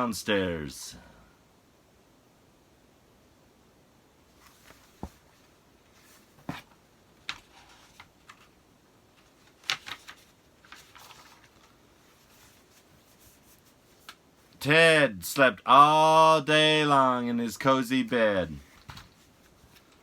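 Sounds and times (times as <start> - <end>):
paper rustling: 4.4 - 8.6, 9.2 - 14.2, 18.6 - 20.0
page turning: 9.2 - 14.2, 18.7 - 20.0.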